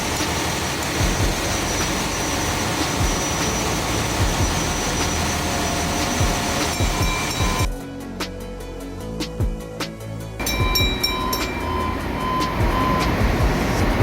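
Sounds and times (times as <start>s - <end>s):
ship engine room machinery din: 0.0s - 7.8s, 10.4s - 14.0s.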